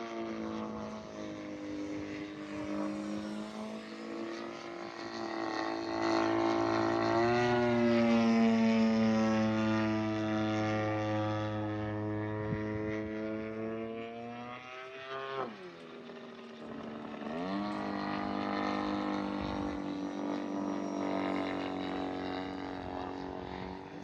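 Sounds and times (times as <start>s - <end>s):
model airplane engine and propeller: 0.0s - 24.0s.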